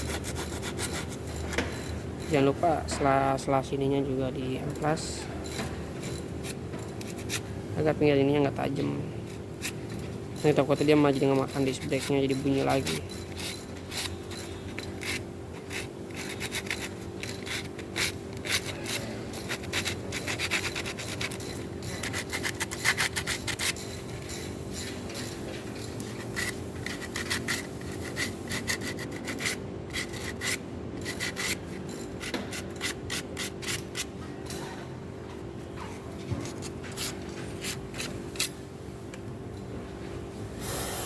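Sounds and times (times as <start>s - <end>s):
sandpaper rasping on brake pad: 0.0s - 2.4s, 9.2s - 34.1s
steady hum: 29.5s - 41.0s.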